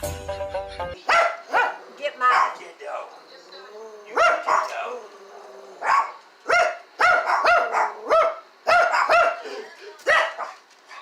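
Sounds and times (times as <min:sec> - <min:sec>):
dog barking: 0:01.0 - 0:02.6, 0:04.1 - 0:04.9, 0:05.8 - 0:11.0.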